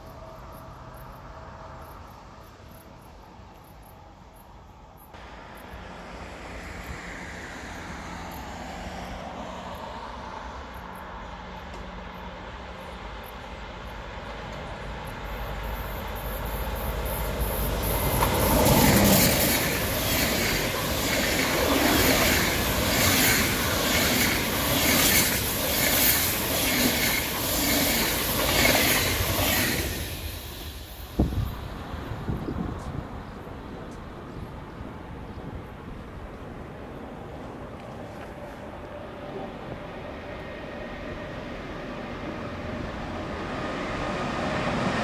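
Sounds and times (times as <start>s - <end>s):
train passing at speed: 0.0s - 45.0s
clatter of train wheels: 11.6s - 32.8s.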